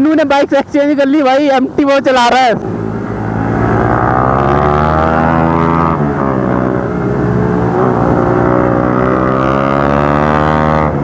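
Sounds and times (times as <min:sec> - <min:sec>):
motorcycle engine running: 0:02.6 - 0:11.0.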